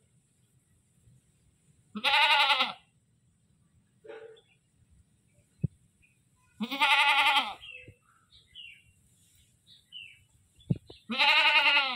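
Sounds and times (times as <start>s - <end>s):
goat bleating: 2.0s - 2.8s, 6.6s - 7.7s, 11.1s - 11.9s.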